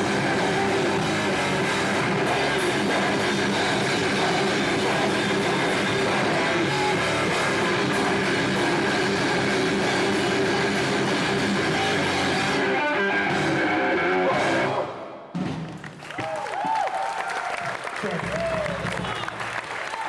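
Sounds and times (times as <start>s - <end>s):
distorted electric guitars: 0.0s - 15.2s
drums: 0.0s - 19.5s.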